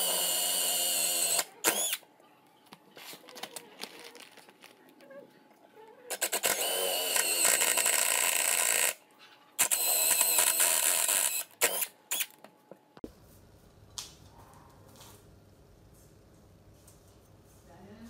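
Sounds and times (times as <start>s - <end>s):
electric drill motor running: 0.0s - 2.0s, 6.1s - 9.0s, 9.6s - 12.3s.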